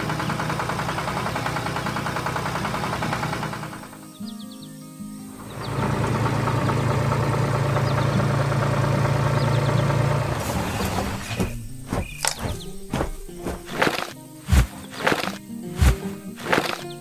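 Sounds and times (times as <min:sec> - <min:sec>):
heavy vehicle engine running: 0:00.0 - 0:04.6, 0:05.4 - 0:17.0
sharp knocks: 0:10.4 - 0:17.0.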